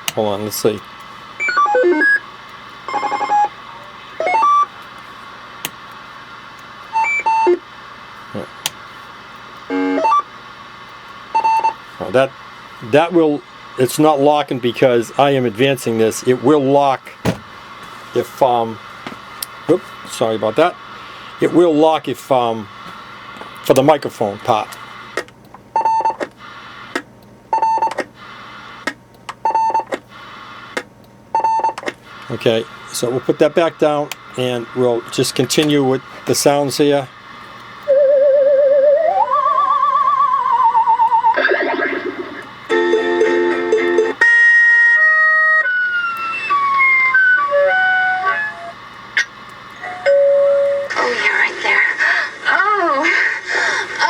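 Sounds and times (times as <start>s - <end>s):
electronic beep sequences: 1.4s - 2.2s, 2.9s - 3.5s, 4.2s - 4.7s.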